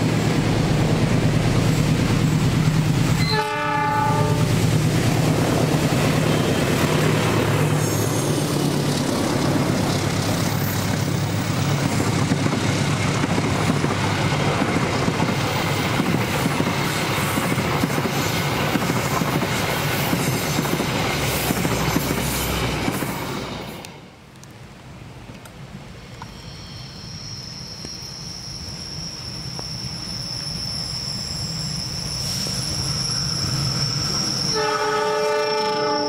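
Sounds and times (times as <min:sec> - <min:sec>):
locomotive engine humming: 0:00.0 - 0:26.3
train wheels clickety-clack: 0:04.4 - 0:24.0.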